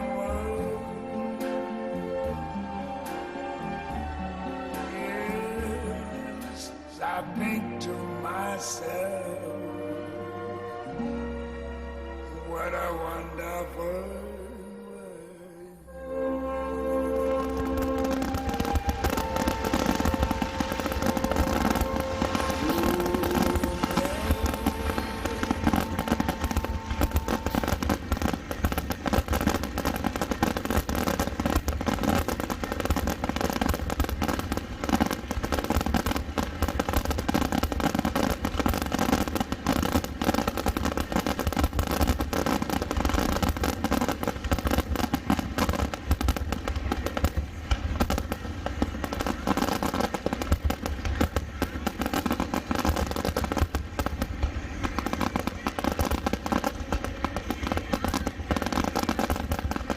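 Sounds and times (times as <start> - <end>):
fireworks bangs and crackles: 17.0 - 59.9.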